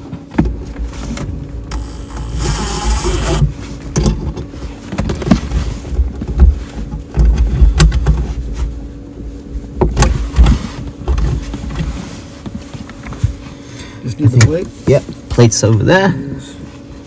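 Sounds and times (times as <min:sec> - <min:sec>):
steady low hum: 0:01.5 - 0:03.5.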